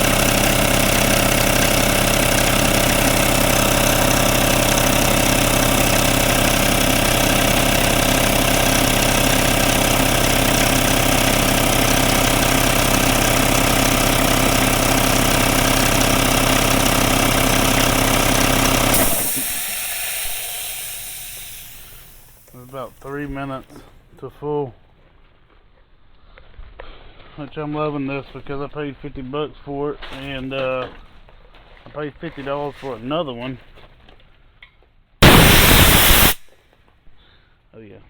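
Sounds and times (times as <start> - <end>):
air compressor running: 0.0 - 23.2, 35.2 - 36.4
air hissing: 18.9 - 22.8, 35.2 - 36.4.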